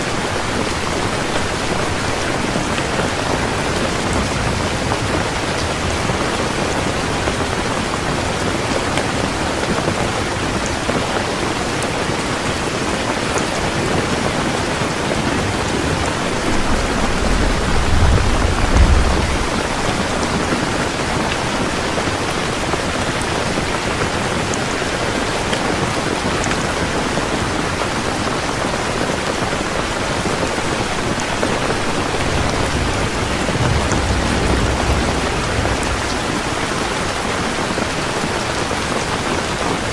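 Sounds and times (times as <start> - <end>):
thunder rumbling: 0.0 - 11.1, 13.7 - 23.8, 29.4 - 39.8
heavy rain pouring: 0.0 - 39.9.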